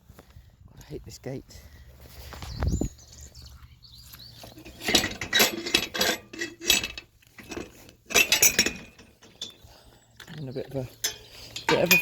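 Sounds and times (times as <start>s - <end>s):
metal gate latch rattling and clanking: 4.6s - 9.6s, 10.3s - 12.0s.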